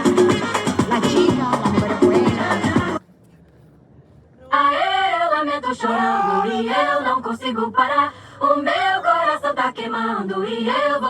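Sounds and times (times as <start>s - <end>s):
person singing unaccompanied: 0.0s - 3.0s, 4.5s - 11.0s.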